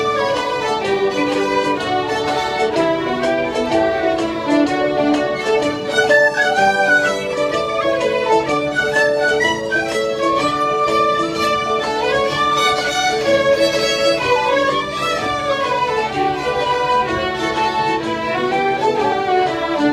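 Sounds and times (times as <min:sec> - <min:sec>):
faint guitar accompaniment: 0:00.0 - 0:19.9
fiddles playing a tune: 0:00.0 - 0:19.9.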